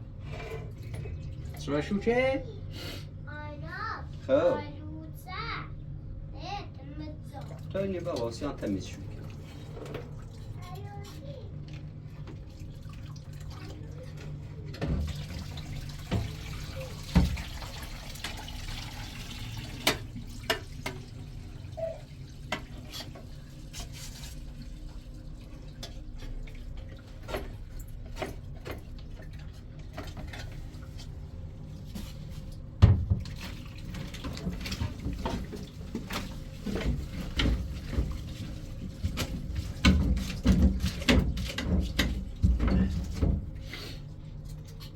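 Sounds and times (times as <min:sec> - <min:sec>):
water running from a tap: 0:07.4 - 0:31.8.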